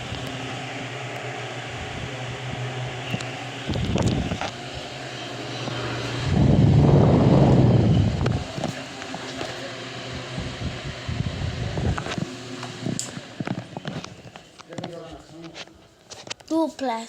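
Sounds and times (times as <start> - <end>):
electric fan motor hum: 0.0 - 16.4
wind buffeting microphone: 6.2 - 8.6, 10.4 - 12.2.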